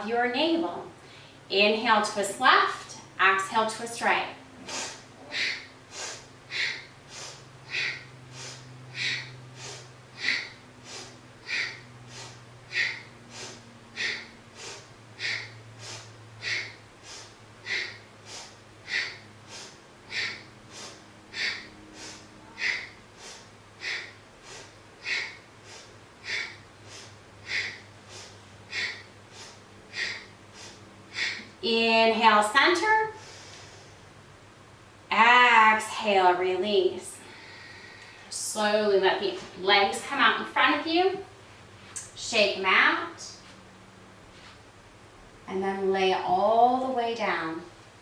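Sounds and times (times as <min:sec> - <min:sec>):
rapid rhythmic breathing: 0:00.0 - 0:34.3.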